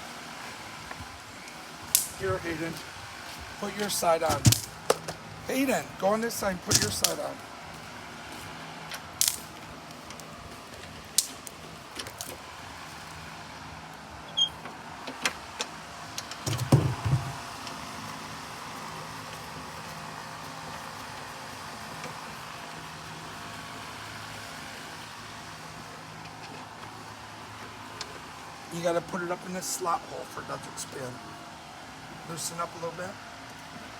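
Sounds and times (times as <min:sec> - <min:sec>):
clicks and knocks of parts fitted: 0:06.7 - 0:07.2
knocking and rattling: 0:16.4 - 0:17.5.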